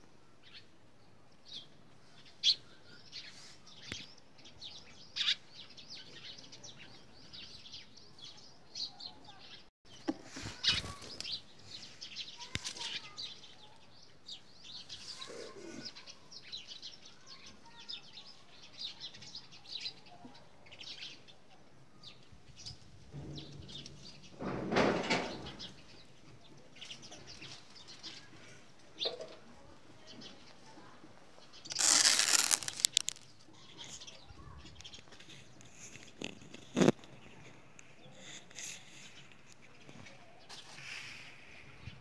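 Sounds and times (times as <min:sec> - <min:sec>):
small birds chirping: 0:00.2 - 0:24.4, 0:25.4 - 0:42.0.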